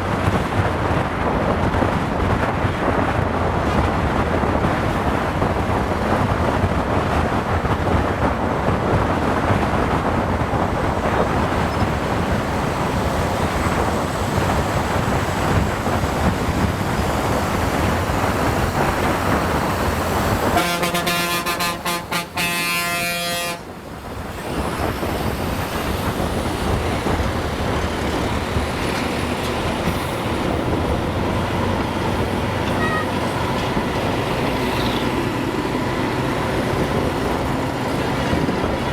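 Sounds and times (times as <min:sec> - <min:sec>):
motorcycle wind and road noise: 0:00.0 - 0:38.9
vehicle horn blast: 0:20.6 - 0:23.7, 0:32.7 - 0:33.2.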